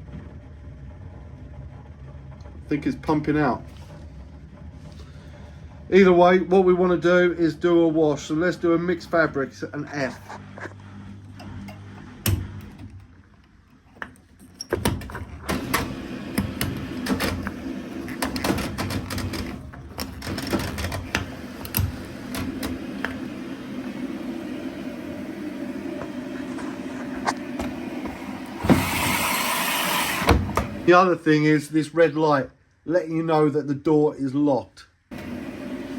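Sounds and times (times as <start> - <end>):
washing machine motor hum: 0.0 - 31.7, 35.1 - 35.9
mechanical clicks and knocks: 11.2 - 23.3.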